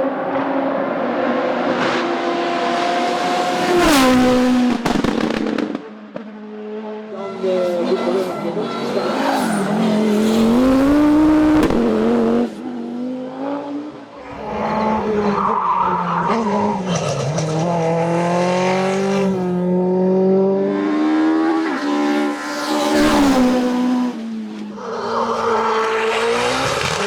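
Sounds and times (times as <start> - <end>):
racing car engines at full throttle: 0.0 - 27.0.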